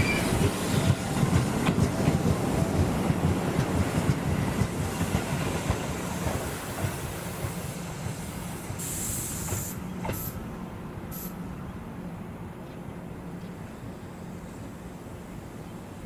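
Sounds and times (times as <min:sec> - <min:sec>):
electric train rumbling on rails: 0:00.0 - 0:16.0
air hissing: 0:05.9 - 0:10.4, 0:11.1 - 0:11.4.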